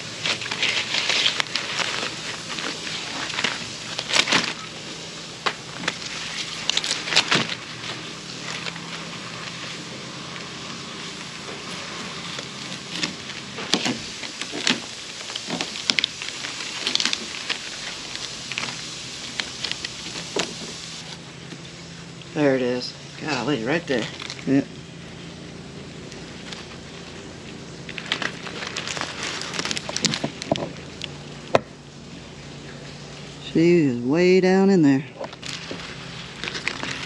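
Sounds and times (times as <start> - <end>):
plant stalk crackling and snapping: 0.2 - 21.1, 27.8 - 31.2.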